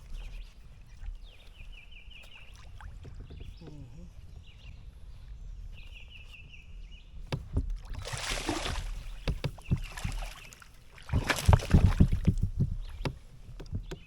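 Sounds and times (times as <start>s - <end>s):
hollow knocks on kayak hull: 7.2s - 14.0s
water splashing: 7.5s - 14.0s.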